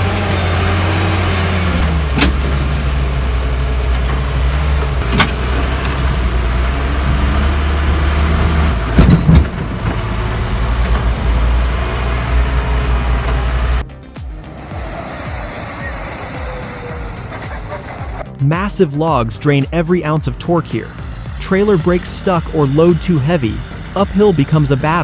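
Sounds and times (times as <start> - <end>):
sharp metallic clanks: 0.0 - 18.2
heavy diesel engine running: 0.0 - 25.0.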